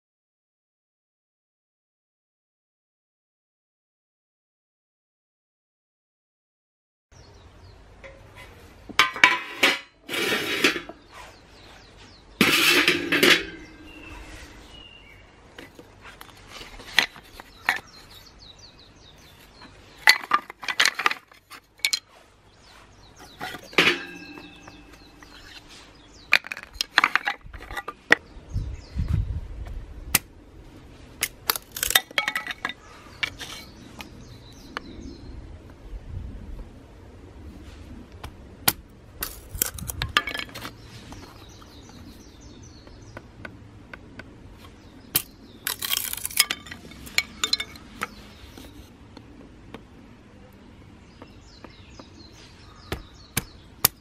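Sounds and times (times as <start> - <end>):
metal cookware scraping clatter: 8.1 - 11.1, 12.4 - 14.4, 23.2 - 25.8
metal cookware clinking: 12.4 - 13.9, 23.4 - 25.4, 45.9 - 47.8
metal ringing: 12.4 - 14.1, 23.4 - 25.6.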